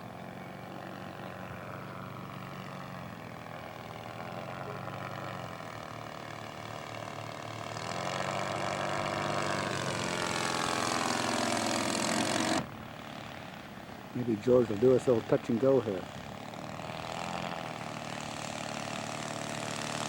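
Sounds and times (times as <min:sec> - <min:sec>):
model airplane engine running: 0:00.0 - 0:20.0.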